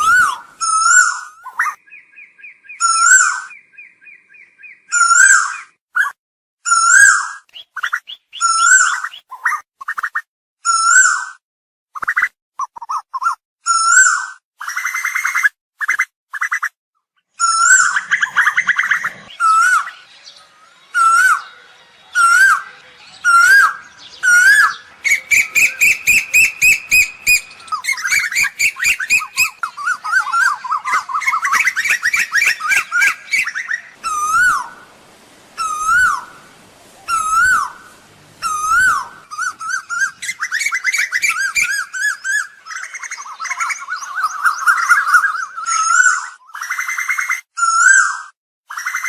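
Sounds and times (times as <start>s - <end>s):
koel whistled calls: 0.0s - 10.1s, 12.0s - 49.0s
fast runs of sharp bird notes: 17.4s - 45.3s.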